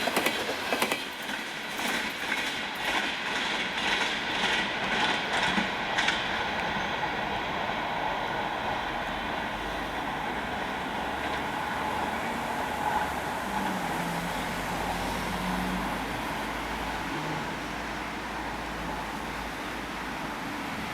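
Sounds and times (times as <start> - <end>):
traffic hiss and rumble: 4.2 - 20.9.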